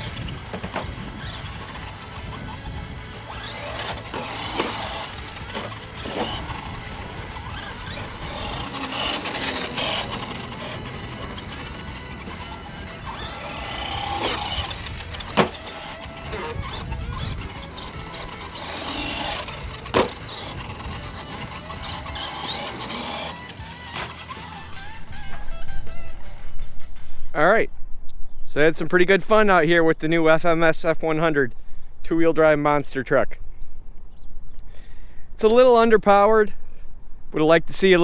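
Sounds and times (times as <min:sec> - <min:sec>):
background music: 0:00.0 - 0:27.2
electric motor whining: 0:00.0 - 0:27.3.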